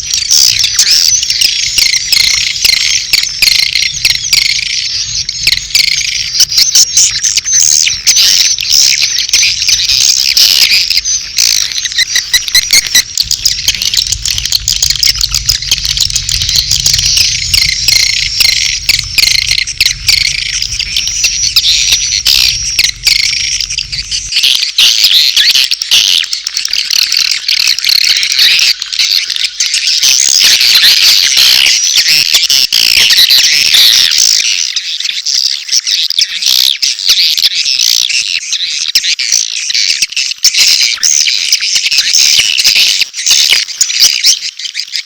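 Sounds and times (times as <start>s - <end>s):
twittering swiftlet chorus: 0.0s - 25.4s
low hum: 0.0s - 26.0s.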